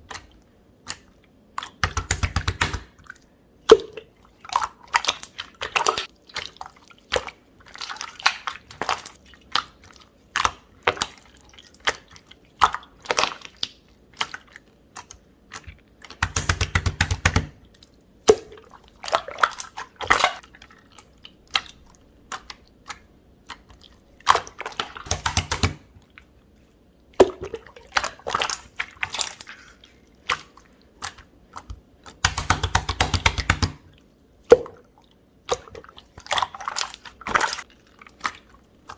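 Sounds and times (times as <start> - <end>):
small bubble pops: 3.7 - 4.1, 27.2 - 28.1.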